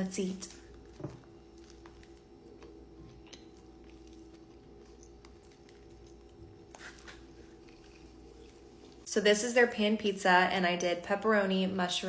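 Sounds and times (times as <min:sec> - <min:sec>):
steady low hum: 0:00.0 - 0:12.0
person chewing food: 0:00.6 - 0:09.1.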